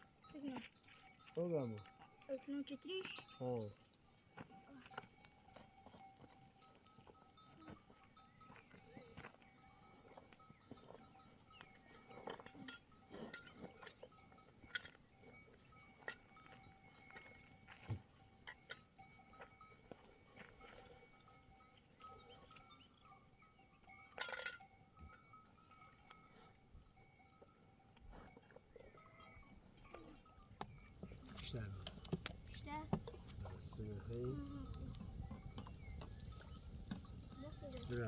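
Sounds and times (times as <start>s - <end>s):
livestock bells clinking: 0.0s - 38.0s.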